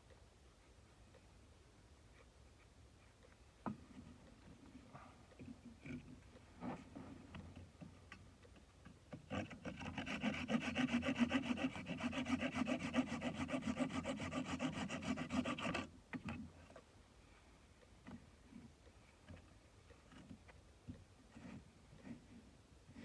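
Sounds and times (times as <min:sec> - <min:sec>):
hand tool cutting wood: 0:09.1 - 0:15.9.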